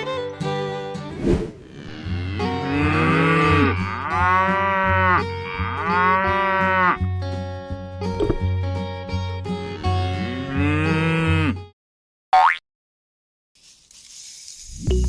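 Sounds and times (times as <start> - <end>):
cow mooing: 1.6 - 7.0, 9.6 - 11.6
background music: 2.0 - 11.5.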